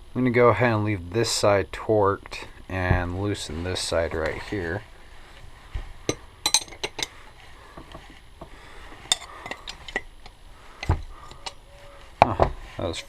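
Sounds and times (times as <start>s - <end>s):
wrench clinking on metal: 6.5s - 7.1s.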